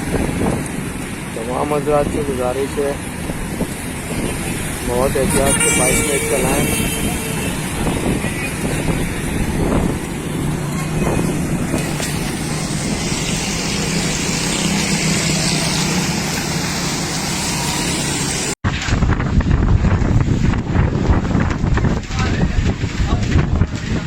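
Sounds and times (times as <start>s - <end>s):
wind buffeting microphone: 0.0s - 17.4s, 18.6s - 24.0s
vehicle engines running: 0.0s - 18.6s
wind noise: 0.0s - 24.0s.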